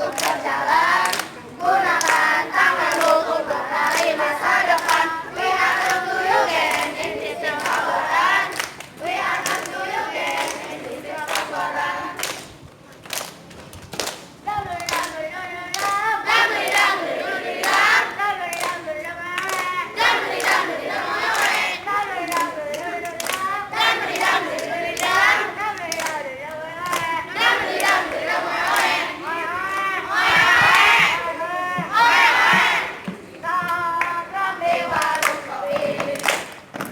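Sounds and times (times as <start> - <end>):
children's choir singing: 0.0 - 12.4, 14.4 - 36.6
hand claps: 0.1 - 3.2, 3.8 - 5.1, 8.5 - 11.6, 12.2 - 16.0, 17.6 - 18.8, 19.4 - 20.7, 22.3 - 23.5, 24.1 - 27.1, 31.8 - 36.9.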